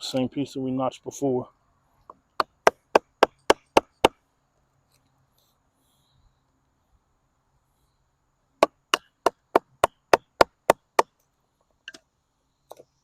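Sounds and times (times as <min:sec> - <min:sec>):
knife chopping into wood: 0:02.4 - 0:04.2, 0:08.6 - 0:11.1.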